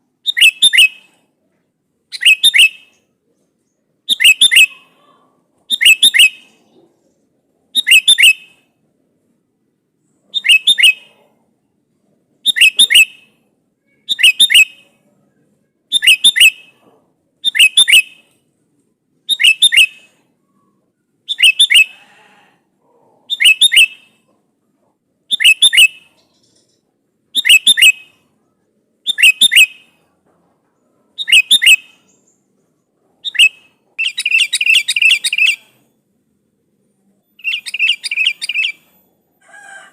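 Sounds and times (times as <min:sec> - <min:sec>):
bulbul calling: 0:00.2 - 0:01.2, 0:02.1 - 0:07.2, 0:07.8 - 0:08.6, 0:10.2 - 0:11.4, 0:12.4 - 0:13.4, 0:14.0 - 0:15.0, 0:15.9 - 0:18.4, 0:19.3 - 0:22.0, 0:23.2 - 0:24.4, 0:25.3 - 0:28.3, 0:29.0 - 0:30.1, 0:31.2 - 0:35.9, 0:37.4 - 0:39.0.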